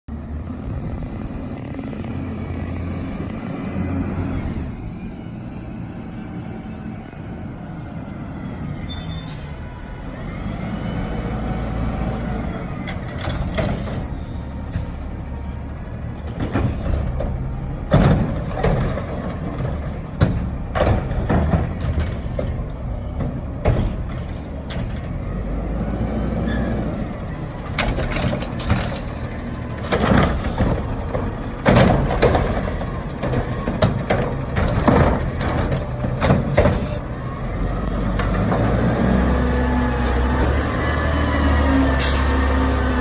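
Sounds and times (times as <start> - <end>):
garbage truck diesel engine: 0.1 - 43.0
clanks and bangs of bins: 12.9 - 15.0, 16.1 - 25.3, 27.5 - 38.9.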